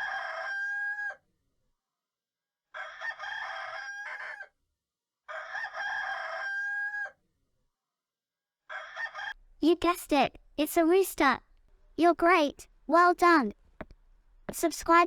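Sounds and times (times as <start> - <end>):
rooster crowing: 0.0 - 1.2, 2.7 - 4.5, 5.3 - 7.2, 8.7 - 9.4.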